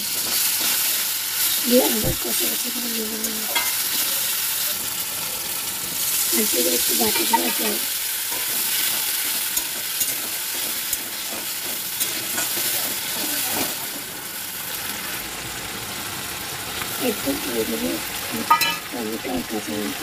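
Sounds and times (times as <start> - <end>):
potatoes sizzling in pan: 0.0 - 20.0
metal spatula clicking on pan: 8.3 - 11.4.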